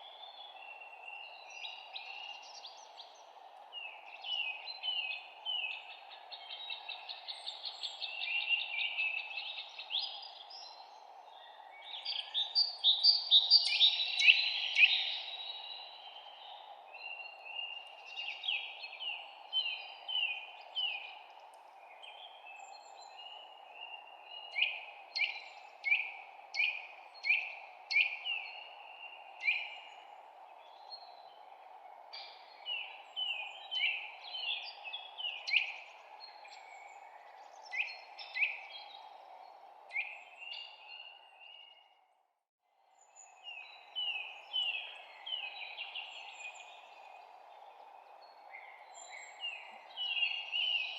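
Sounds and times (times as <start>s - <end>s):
songbirds chirping and singing: 43.1s - 50.9s.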